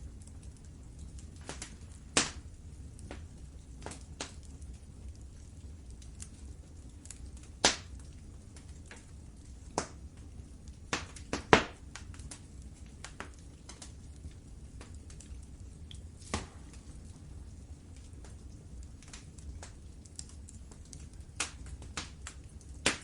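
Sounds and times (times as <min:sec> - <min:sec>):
low steady rumble: 0:00.0 - 0:22.9
loud fire snaps: 0:00.0 - 0:23.0
wood fire crackling and popping: 0:00.0 - 0:23.0.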